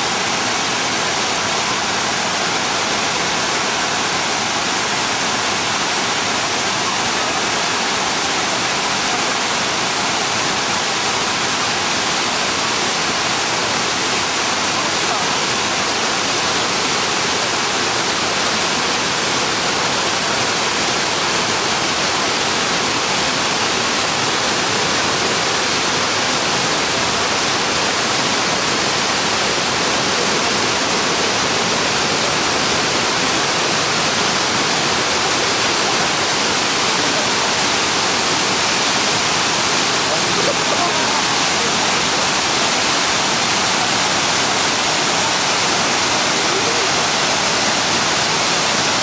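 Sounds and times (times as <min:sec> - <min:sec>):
waterfall rushing: 0:00.0 - 0:49.0.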